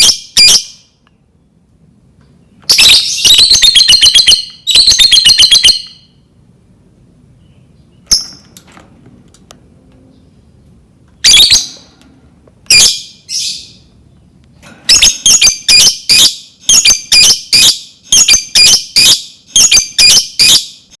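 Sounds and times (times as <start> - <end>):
lovebird shrill staccato calls: 0.0 - 0.8, 2.7 - 6.0, 11.2 - 11.8, 12.7 - 13.8, 14.9 - 20.8.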